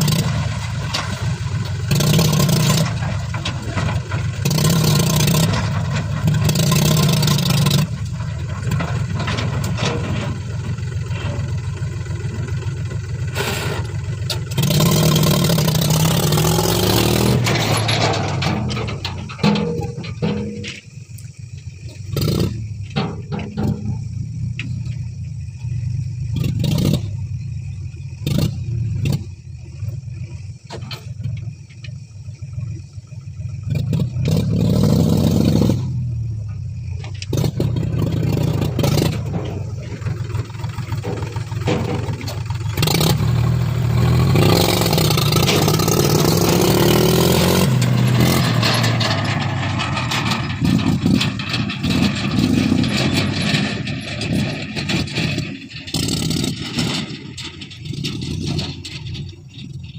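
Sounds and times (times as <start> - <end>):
metallic knocks and clatter: 0.0 - 11.8, 13.8 - 21.0, 21.6 - 24.8, 36.6 - 59.9
diesel machinery engine droning: 0.0 - 59.9.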